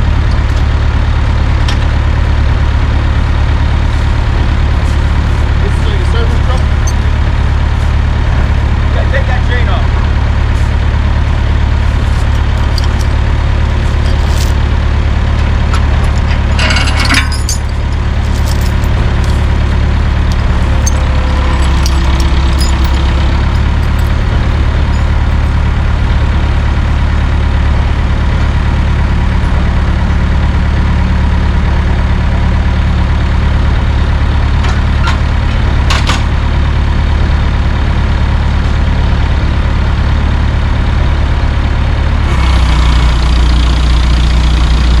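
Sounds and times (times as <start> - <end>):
truck engine idling: 0.0 - 45.0
sharp metallic clinks: 14.0 - 14.6, 16.2 - 25.7.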